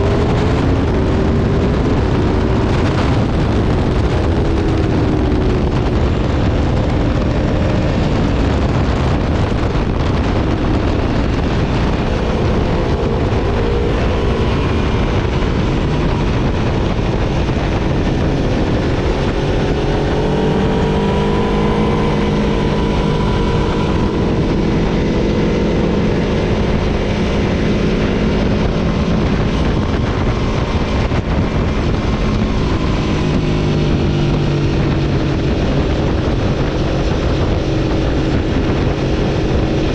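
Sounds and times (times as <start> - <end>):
motorcycle engine at speed: 0.0 - 39.9
wind rush: 0.0 - 39.9.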